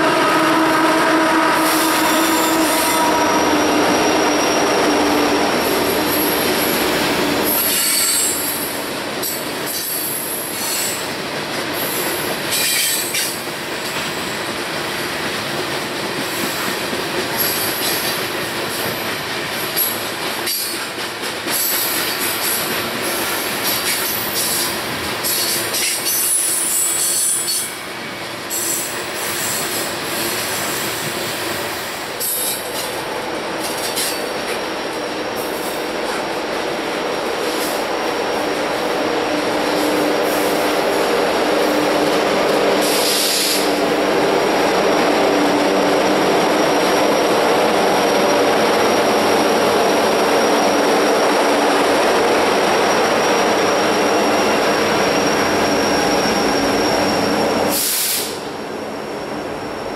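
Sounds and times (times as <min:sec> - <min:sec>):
rail joints clacking: 0:00.0 - 0:58.6
diesel locomotive engine drone: 0:00.0 - 0:59.9
train wheels squealing: 0:01.6 - 0:06.8, 0:07.4 - 0:11.2, 0:11.8 - 0:15.2, 0:16.2 - 0:33.0, 0:41.6 - 0:44.0, 0:52.6 - 0:58.6.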